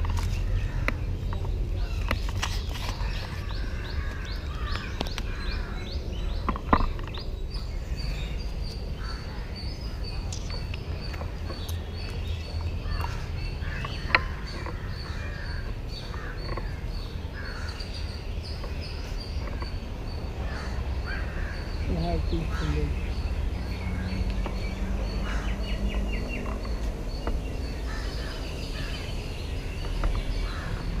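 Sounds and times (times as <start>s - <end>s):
birds chirping: 0.0s - 31.0s
low outdoor rumble: 0.0s - 31.0s
harsh crow-like calls: 12.8s - 18.0s, 20.4s - 21.8s, 25.2s - 25.8s, 27.8s - 29.1s, 30.4s - 31.0s.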